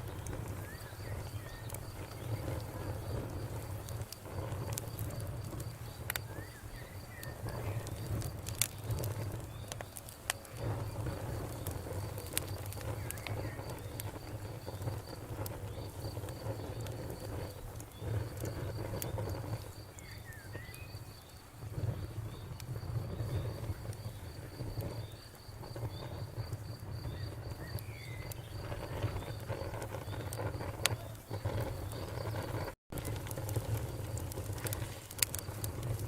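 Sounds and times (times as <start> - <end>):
campfire crackling: 0.0 - 36.0
crickets chirping: 0.0 - 36.0.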